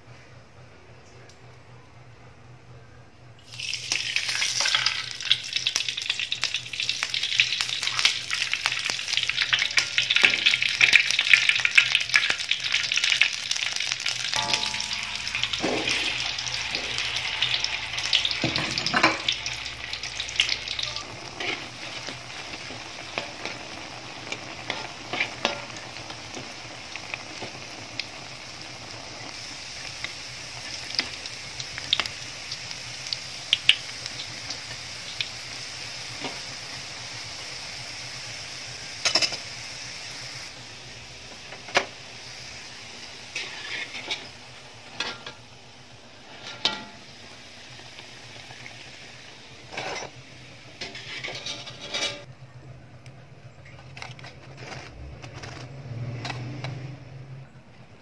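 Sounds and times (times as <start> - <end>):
sausages sizzling in oil: 3.4 - 52.3
metal spatula scraping wok: 14.3 - 26.4, 43.3 - 45.4, 46.2 - 47.1, 49.6 - 52.3.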